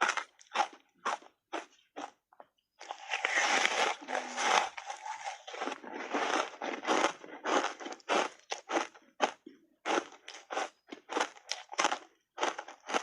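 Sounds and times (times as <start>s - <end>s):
chewing crunches: 0.0s - 13.0s
crunching bite of foam ice: 2.8s - 13.0s.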